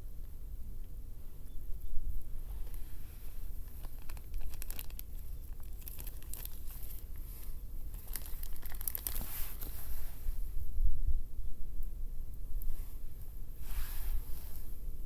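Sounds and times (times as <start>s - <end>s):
crinkling and crackling: 2.2s - 10.5s.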